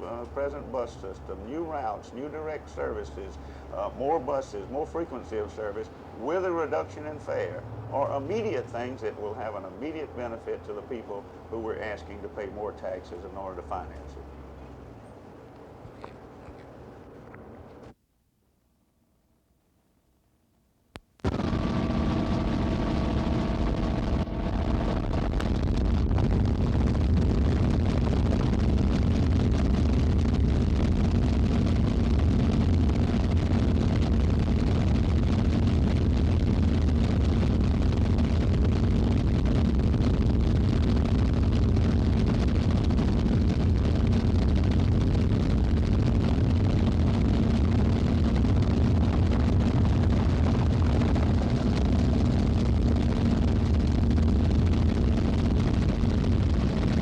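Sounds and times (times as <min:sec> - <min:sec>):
vehicle engine rumbling: 0:00.0 - 0:18.0, 0:21.2 - 0:57.0
high whining tones: 0:21.2 - 0:26.6.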